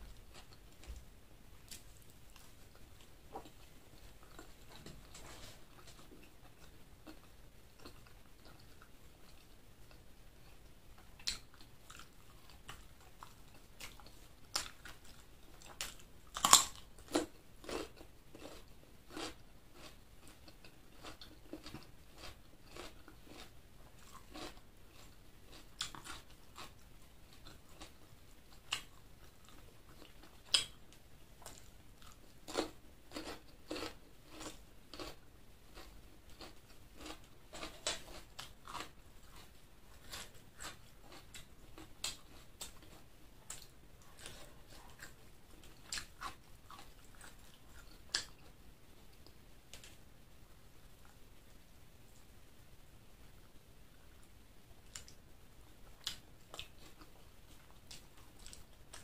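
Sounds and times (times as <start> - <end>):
close-miked chewing and biting: 1.7 - 35.2, 35.8 - 48.6.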